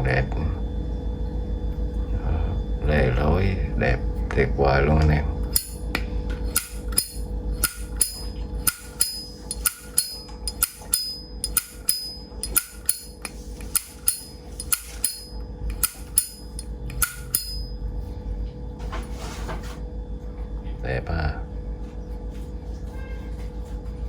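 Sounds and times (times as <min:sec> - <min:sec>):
faint steady hum: 0:00.0 - 0:24.0
lighter lid clicking open and shut: 0:06.5 - 0:17.4.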